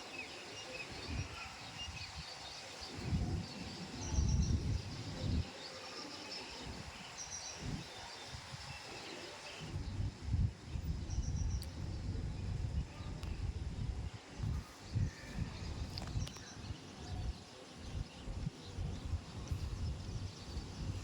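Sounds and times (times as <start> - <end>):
wind buffeting microphone: 0.7 - 21.0.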